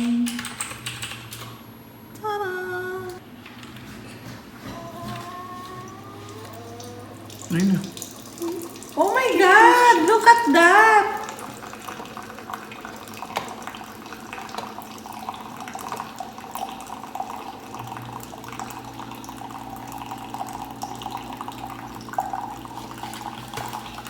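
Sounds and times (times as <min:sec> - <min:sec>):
low steady hum: 0:00.0 - 0:24.0
coffee trickling into mug: 0:11.2 - 0:24.0.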